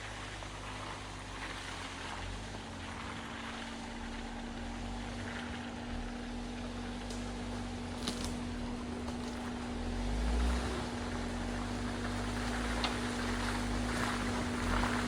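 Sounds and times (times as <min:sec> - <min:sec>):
car engine rumbling: 0:00.0 - 0:15.0
wind or tyre hiss: 0:09.9 - 0:15.0.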